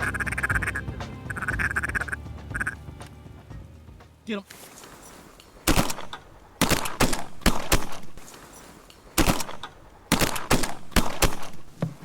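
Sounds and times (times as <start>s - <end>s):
shotguns firing: 5.6s - 8.2s, 9.1s - 11.7s.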